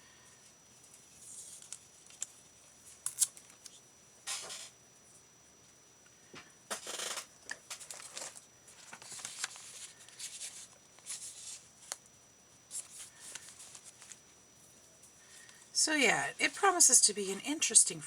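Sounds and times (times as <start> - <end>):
paper rustling and scraping: 7.8 - 12.0, 12.7 - 14.2.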